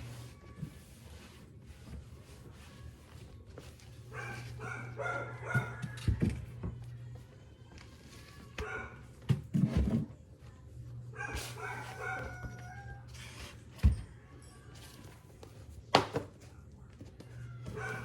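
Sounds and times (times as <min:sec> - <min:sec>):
dog barking: 0:04.1 - 0:05.9, 0:08.6 - 0:09.1, 0:11.2 - 0:12.9, 0:17.7 - 0:18.0.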